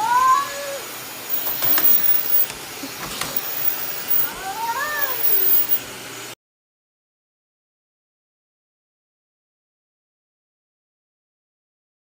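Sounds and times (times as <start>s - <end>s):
steady background hiss: 0.0s - 6.4s.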